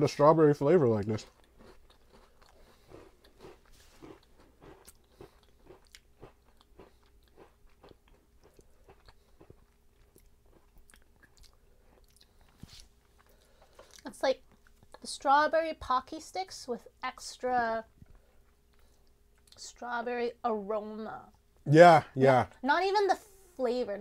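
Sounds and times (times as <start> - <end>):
chewing and crunching biscuits: 0.6 - 15.2, 17.2 - 19.8.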